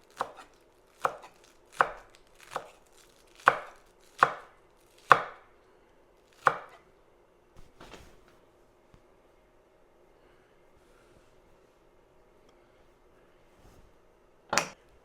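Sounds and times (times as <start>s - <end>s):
knife chopping on cutting board: 0.2s - 2.8s, 3.4s - 4.5s, 5.1s - 5.4s, 6.4s - 6.8s.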